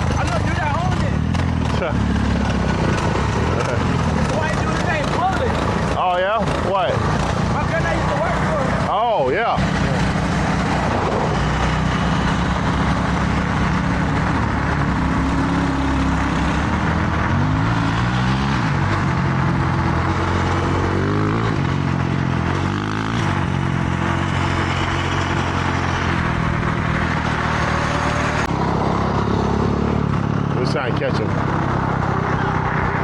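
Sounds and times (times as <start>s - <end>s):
dirt bike engine revving: 0.0s - 33.0s
wind on microphone: 10.2s - 12.8s.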